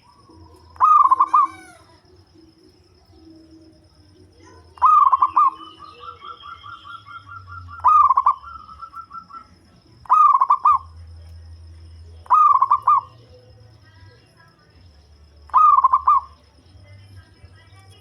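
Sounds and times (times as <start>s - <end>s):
dove cooing: 0.0s - 11.0s, 12.2s - 13.6s, 15.5s - 16.4s.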